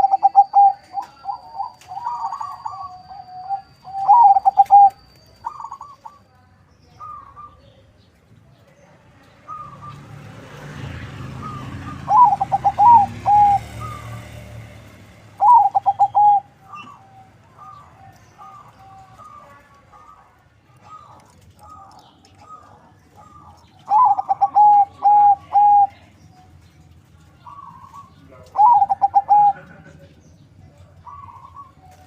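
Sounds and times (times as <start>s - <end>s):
dove cooing: 0.0s - 6.2s, 11.3s - 14.6s, 15.4s - 26.2s, 27.4s - 32.0s.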